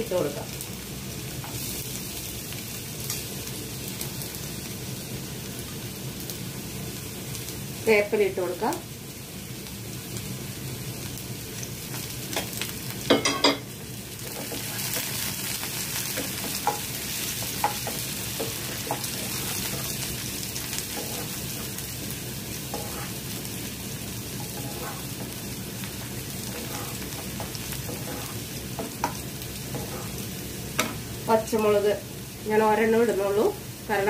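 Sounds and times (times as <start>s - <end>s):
garlic sizzling in hot oil: 0.0s - 34.0s
loud sizzle burst: 13.7s - 34.0s.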